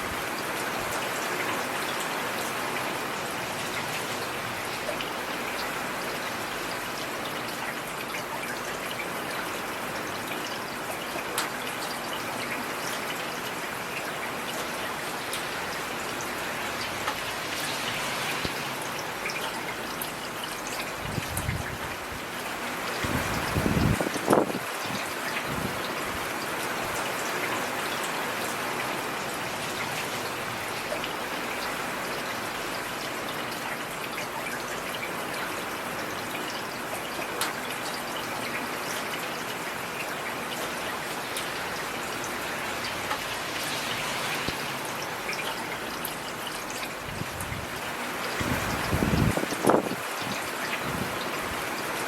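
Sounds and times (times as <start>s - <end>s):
heavy rain falling: 0.0s - 52.0s
raindrop ticks: 11.3s - 11.6s.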